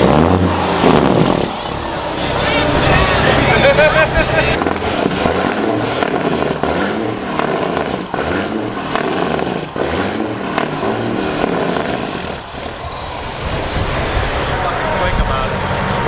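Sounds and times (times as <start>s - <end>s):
truck diesel engines revving: 0.0s - 16.0s.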